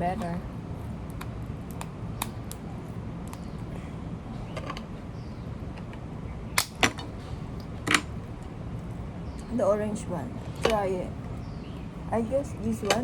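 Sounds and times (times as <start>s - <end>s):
low steady hum: 0.0s - 13.0s
shells cracking and clicking: 1.0s - 2.6s, 6.6s - 8.1s.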